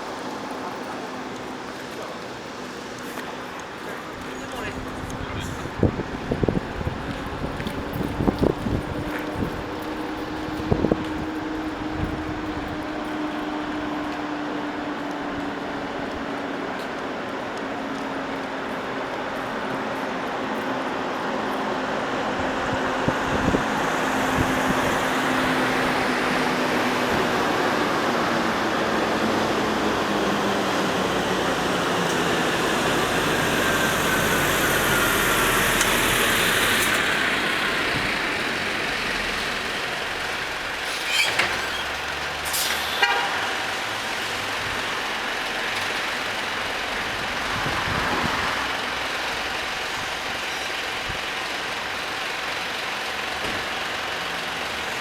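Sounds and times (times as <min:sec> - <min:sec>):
road noise: 0:00.0 - 0:55.0
truck diesel engine running: 0:18.2 - 0:41.0.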